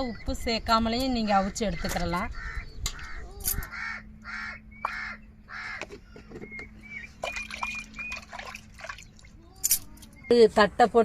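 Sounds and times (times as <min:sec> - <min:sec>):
crows cawing: 0:01.7 - 0:06.4
high whistled bird notes: 0:06.5 - 0:08.6.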